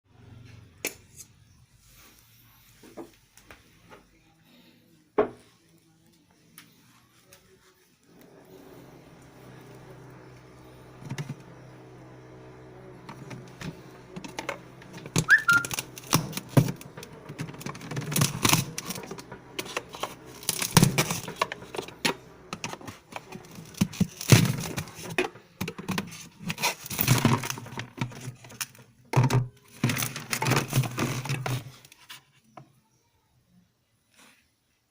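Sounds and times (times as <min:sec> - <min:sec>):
steady low hum: 0:08.0 - 0:25.1
clicks taps and crinkling handling: 0:13.0 - 0:32.7.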